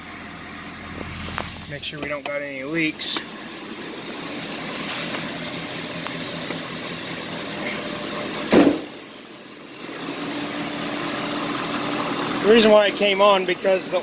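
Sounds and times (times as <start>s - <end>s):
truck engine idling: 0.0s - 14.0s
loud thump: 8.5s - 9.0s.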